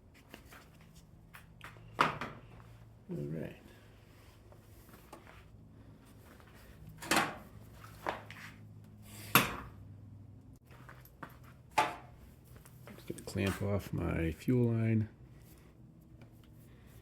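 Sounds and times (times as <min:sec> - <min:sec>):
steady low hum: 0:00.0 - 0:17.0
metal tools clanking: 0:13.1 - 0:13.9.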